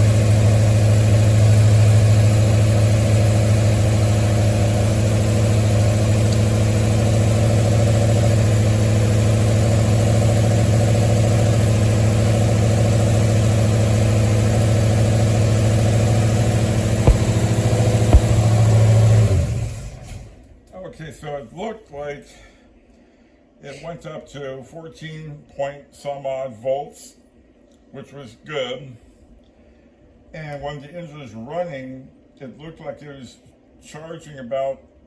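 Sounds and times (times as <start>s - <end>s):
car engine idling: 0.0s - 19.5s
sharp clicks: 17.1s - 18.6s.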